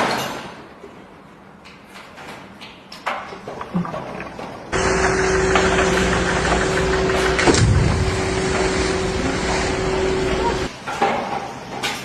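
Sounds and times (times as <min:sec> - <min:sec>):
machine humming: 0:04.7 - 0:10.7.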